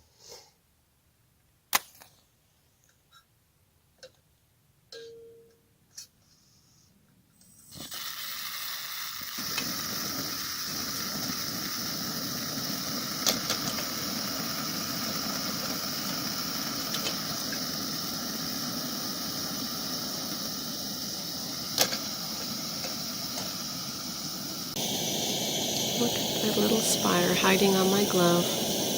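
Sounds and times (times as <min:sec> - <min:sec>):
sizzling hiss on camp stove: 0:07.4 - 0:28.9.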